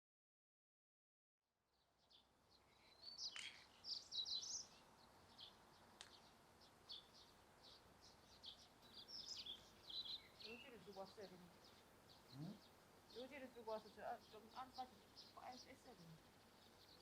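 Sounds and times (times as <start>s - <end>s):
small birds chirping: 1.7s - 17.0s
faint clicks: 6.0s - 6.3s.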